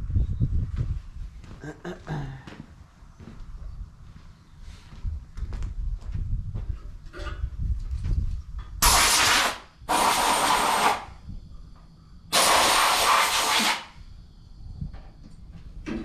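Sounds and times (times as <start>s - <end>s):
hissing air bursts: 8.8s - 11.2s, 12.3s - 14.0s.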